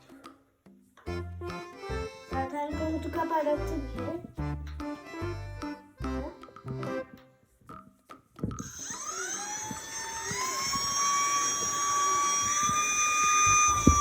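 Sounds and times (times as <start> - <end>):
vacuum cleaner motor whine: 8.7 - 14.0.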